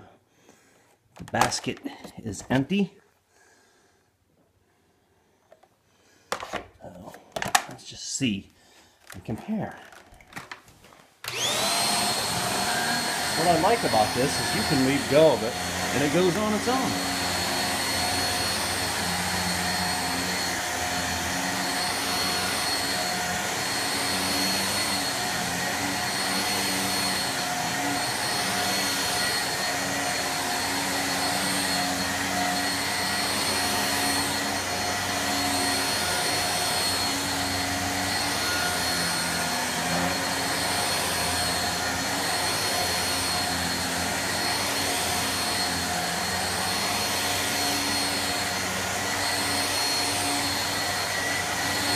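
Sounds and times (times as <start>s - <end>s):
vacuum cleaner running: 11.2s - 51.9s.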